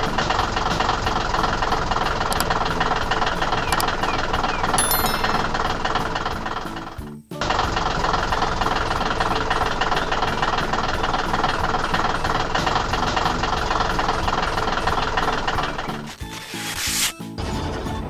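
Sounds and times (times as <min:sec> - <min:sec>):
heavy machine engine rattling: 0:00.0 - 0:16.8.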